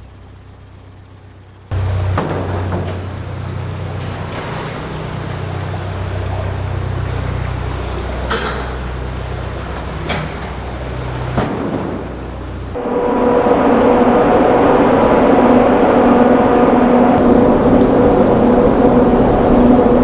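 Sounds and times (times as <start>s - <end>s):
boat diesel engine idling: 0.0s - 12.8s, 14.1s - 20.0s
sharp knocks: 1.8s - 5.7s.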